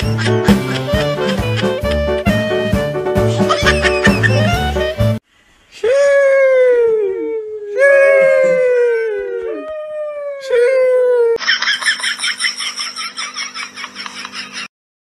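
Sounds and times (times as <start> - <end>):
dog howling: 6.7 - 11.4.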